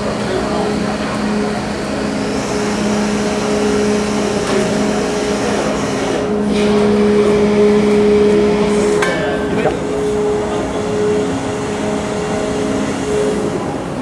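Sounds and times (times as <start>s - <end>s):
ferry machinery humming: 0.0s - 14.0s.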